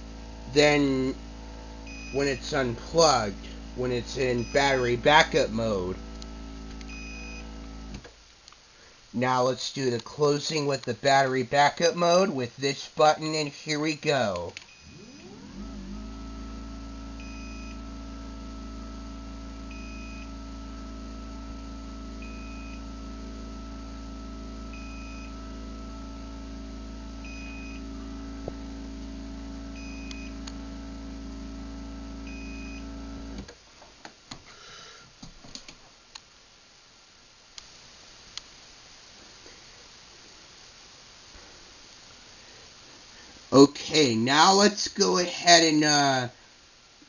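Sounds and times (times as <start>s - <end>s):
garage door opener motor hum: 0.0s - 8.1s, 14.7s - 33.5s
short beeps: 4.4s - 4.9s.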